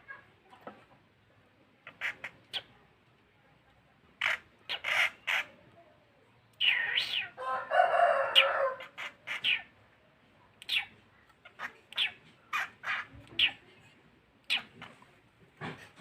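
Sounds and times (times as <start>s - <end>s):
bird harsh calls: 1.8s - 2.8s, 4.2s - 5.6s, 6.6s - 7.4s, 8.0s - 9.8s, 10.6s - 13.8s, 14.4s - 15.0s.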